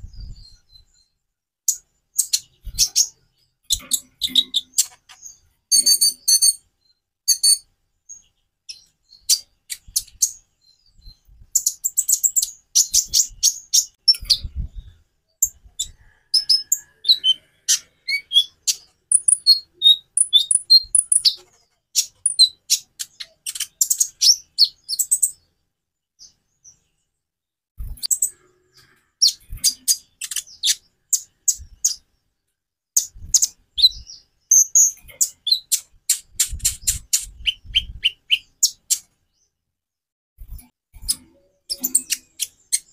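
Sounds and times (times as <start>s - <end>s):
bird chirps and trills: 0.0s - 25.5s, 27.8s - 32.1s, 33.0s - 39.5s, 41.0s - 42.9s.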